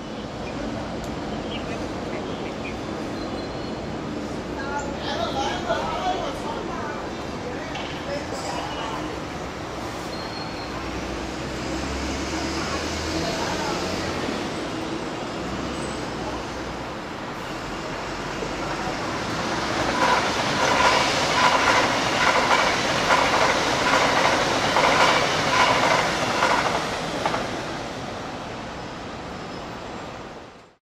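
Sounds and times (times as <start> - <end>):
train rumble: 0.0 - 30.6
train wheels clickety-clack: 19.4 - 27.6.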